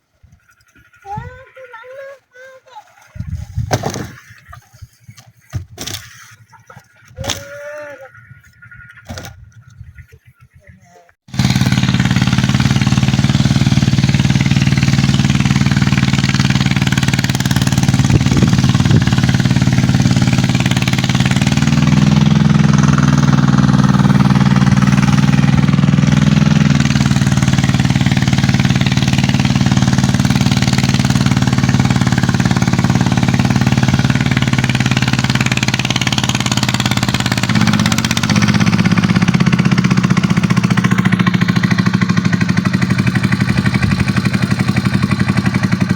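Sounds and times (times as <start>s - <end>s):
tractor diesel engine running hard: 11.2s - 45.9s.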